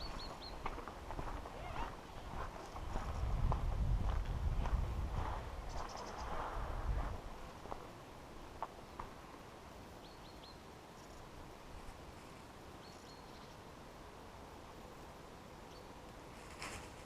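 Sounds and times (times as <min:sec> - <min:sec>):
small bird chirping: 0:00.0 - 0:00.7, 0:05.7 - 0:06.4, 0:12.8 - 0:13.6
steps crunching on forest floor: 0:00.0 - 0:07.9.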